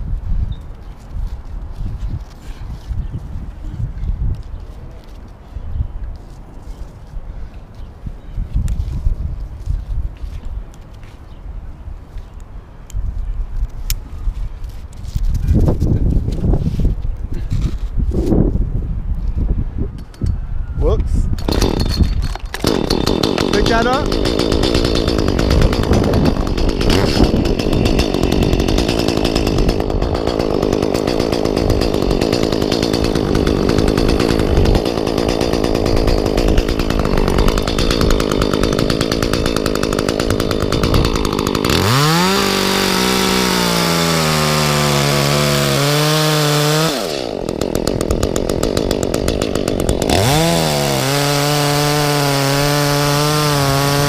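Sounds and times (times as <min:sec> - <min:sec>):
chainsaw cutting wood: 0:21.4 - 0:54.0
chainsaw revving: 0:21.4 - 0:54.0.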